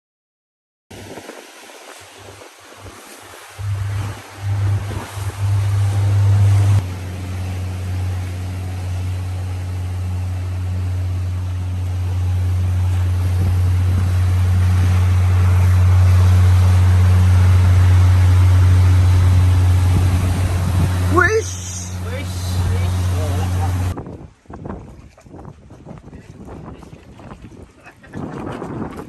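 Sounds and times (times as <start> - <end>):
boat engine droning: 1.0 - 24.0.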